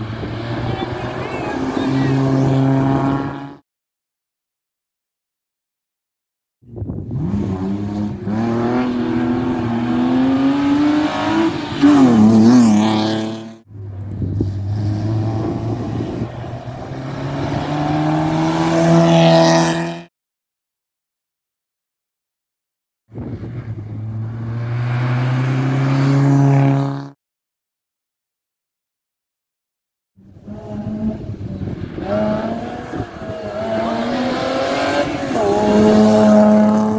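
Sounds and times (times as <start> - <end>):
rally car engine accelerating: 0.0 - 3.6, 6.7 - 20.1, 23.2 - 27.2, 30.2 - 36.9.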